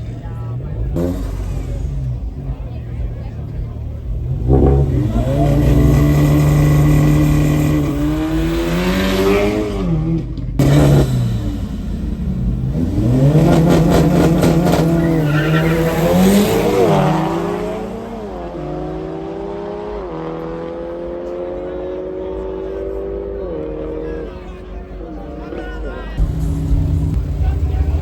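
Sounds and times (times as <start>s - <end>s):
car engines revving hard: 0.0s - 28.0s.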